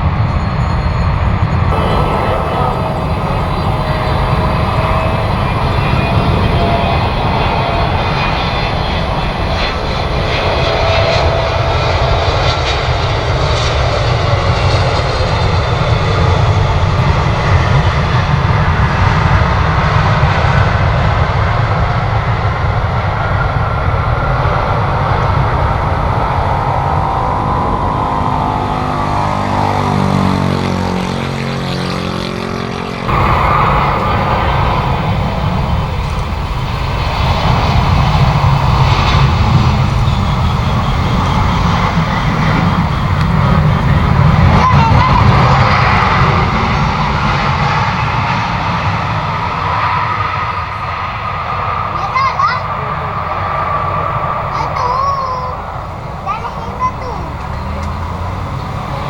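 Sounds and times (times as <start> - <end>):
jet airliner passing by: 0.0 - 59.0
bright jet noise: 1.6 - 20.4, 21.9 - 59.0.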